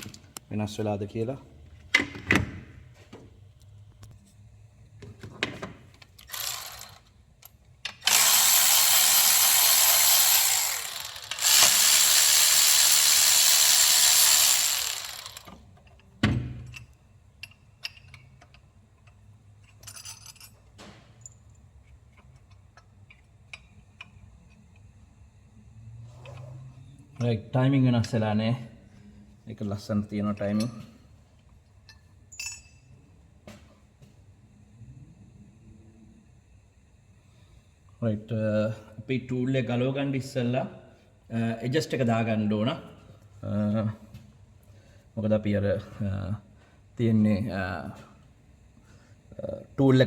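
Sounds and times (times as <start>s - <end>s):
power tool running: 6.3s - 7.0s, 8.0s - 15.6s
tools clicking and clanking: 14.8s - 24.9s.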